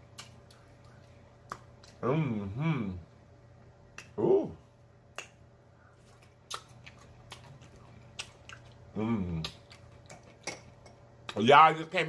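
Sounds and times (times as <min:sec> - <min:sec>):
lip-smacking clicks: 0:00.1 - 0:02.0.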